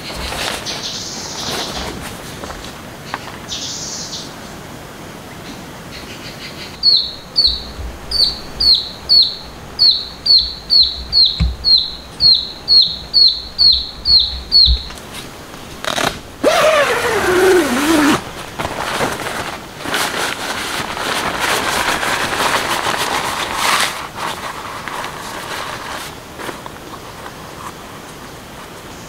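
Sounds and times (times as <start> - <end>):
bird calling high notes: 6.8 - 15.0
loud downward sliding sound: 16.4 - 18.4.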